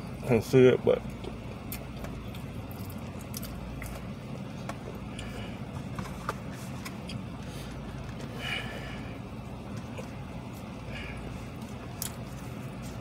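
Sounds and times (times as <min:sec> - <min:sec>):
chewing a biscuit: 0:01.1 - 0:05.4.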